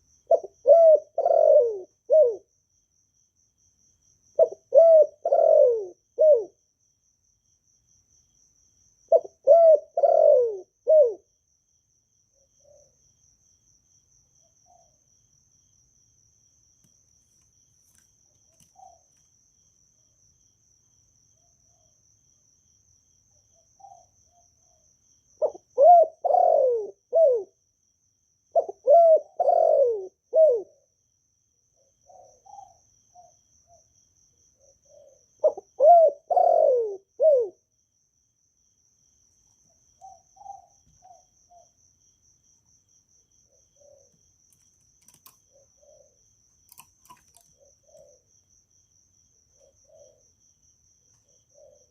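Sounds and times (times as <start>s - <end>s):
faint insect trill: 0.0s - 51.9s
dove cooing: 0.3s - 2.5s, 4.4s - 6.6s, 9.1s - 11.3s, 12.6s - 13.0s, 18.5s - 19.1s, 25.4s - 27.6s, 28.5s - 30.9s, 31.8s - 33.8s, 34.6s - 37.7s, 40.0s - 41.8s, 43.5s - 44.2s, 45.0s - 48.3s, 49.5s - 50.3s, 51.2s - 51.9s.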